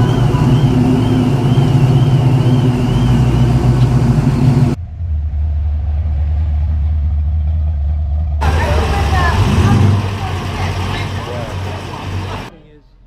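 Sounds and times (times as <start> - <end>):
car engine rumbling: 0.0 - 13.0
deep low drone: 0.0 - 13.0.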